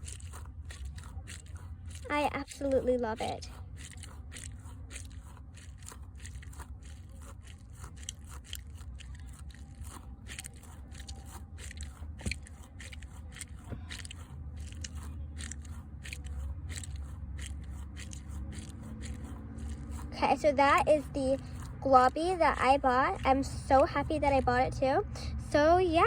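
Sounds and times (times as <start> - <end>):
squishy toy squelching clicks: 0.0 - 24.8.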